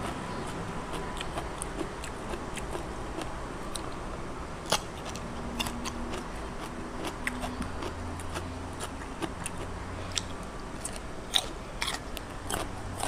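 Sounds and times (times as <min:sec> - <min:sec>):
wet chewing clicks: 0:00.0 - 0:04.0, 0:04.7 - 0:13.0.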